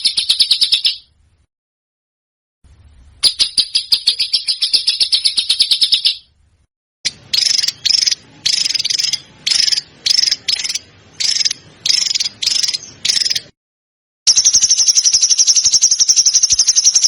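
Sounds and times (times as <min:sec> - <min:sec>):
songbird trilling: 0:00.0 - 0:01.1, 0:03.2 - 0:06.3, 0:07.1 - 0:13.5, 0:14.3 - 0:17.0.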